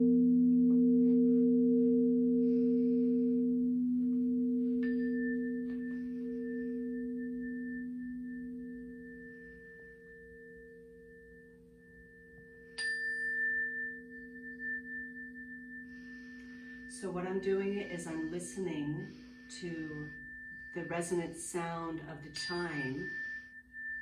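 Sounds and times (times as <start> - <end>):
high-pitched chime ringing: 12.4 - 24.0.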